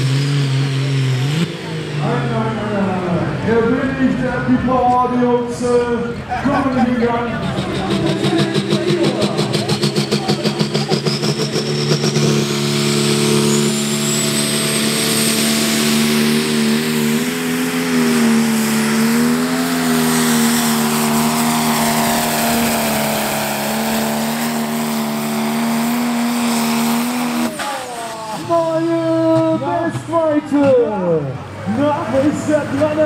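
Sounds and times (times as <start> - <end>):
diesel engine at full throttle: 0.0 - 33.0.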